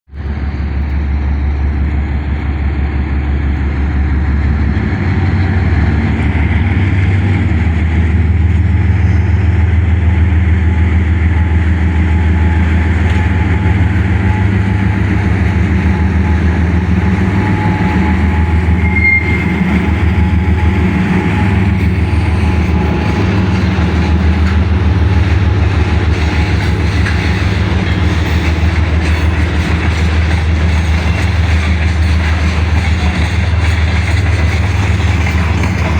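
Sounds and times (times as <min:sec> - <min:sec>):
diesel locomotive drone: 0:00.1 - 0:35.9
freight train rolling: 0:00.1 - 0:35.9
high squeal: 0:11.2 - 0:31.5.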